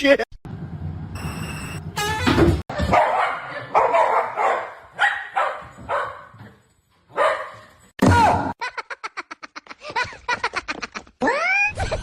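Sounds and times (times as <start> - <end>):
dog barking: 2.8 - 6.5, 7.1 - 7.7.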